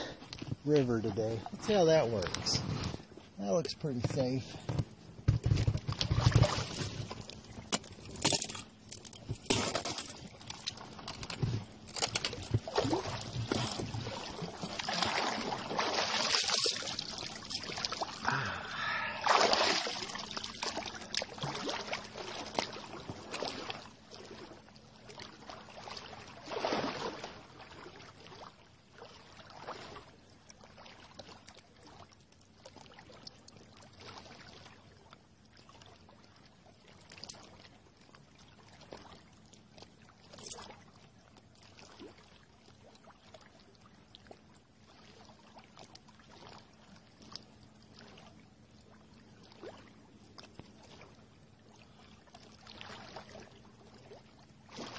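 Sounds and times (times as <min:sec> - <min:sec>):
river water flowing: 0:00.0 - 0:30.1
swimmer splashing: 0:12.5 - 0:28.0.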